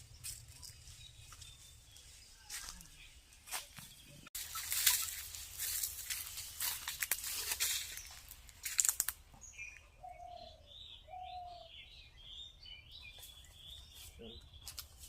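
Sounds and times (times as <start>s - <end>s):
birds chirping and calling: 0.0s - 15.0s
crackling rustle: 4.4s - 9.2s.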